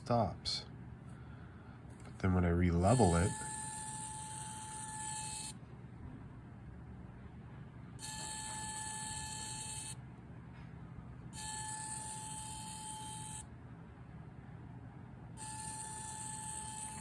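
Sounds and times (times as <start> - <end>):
gimbal motor whining: 2.9 - 5.6, 8.0 - 10.0, 11.4 - 13.4, 15.4 - 17.0.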